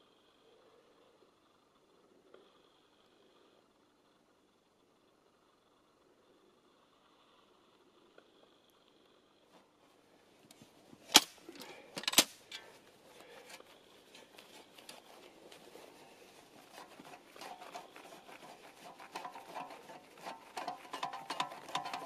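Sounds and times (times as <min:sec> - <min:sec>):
shovel crunching and scraping snow: 0:13.2 - 0:22.0.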